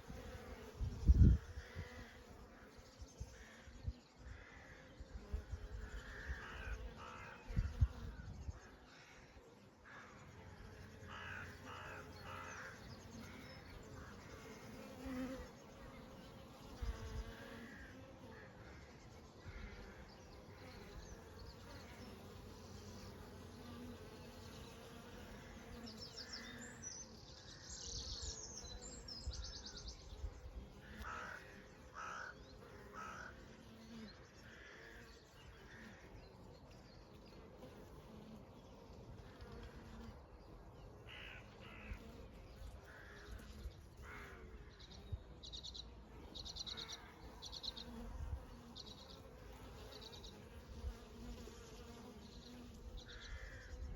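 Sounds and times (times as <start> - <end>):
honey bees buzzing: 0.0 - 53.9
birds calling: 11.0 - 30.0, 30.8 - 37.0.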